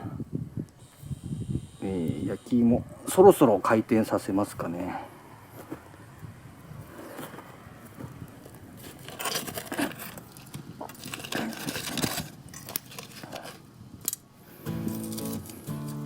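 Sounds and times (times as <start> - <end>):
metal tongs clinking and scraping: 10.9 - 14.2.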